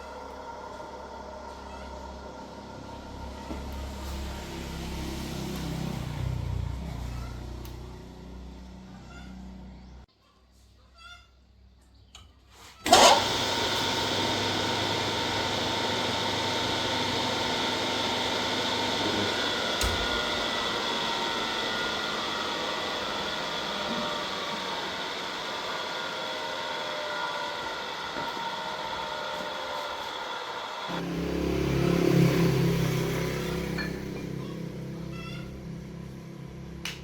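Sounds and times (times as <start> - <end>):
motor-driven machine whining: 12.8 - 31.4.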